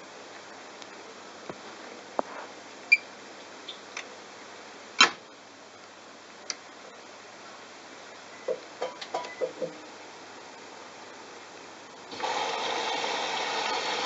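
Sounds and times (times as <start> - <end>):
washing machine hissing: 12.0 - 14.0.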